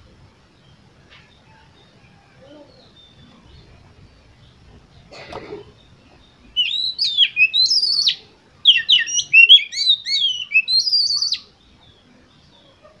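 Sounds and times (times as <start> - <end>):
bird singing whistled notes: 5.8 - 12.5.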